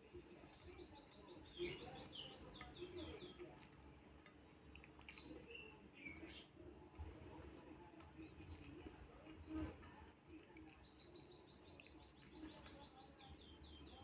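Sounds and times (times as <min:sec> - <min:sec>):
faint bird chirping: 0:00.0 - 0:03.5, 0:04.1 - 0:06.8, 0:10.3 - 0:14.0.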